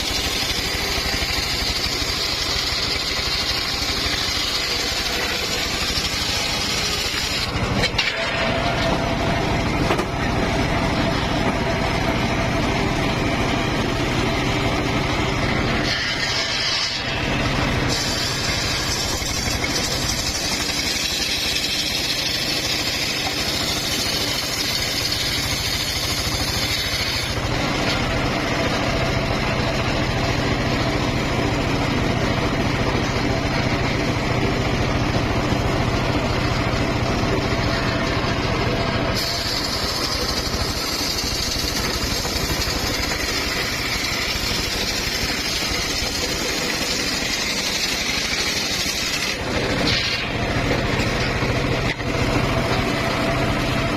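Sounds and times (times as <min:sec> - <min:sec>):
saw hiss: 0:00.0 - 0:07.6, 0:17.8 - 0:27.4, 0:39.2 - 0:50.3
circular saw droning: 0:00.0 - 0:53.9.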